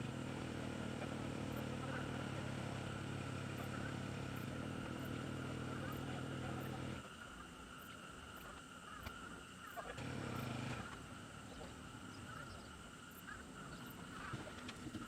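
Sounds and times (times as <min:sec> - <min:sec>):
engine humming: 0:00.0 - 0:07.0, 0:10.0 - 0:12.5.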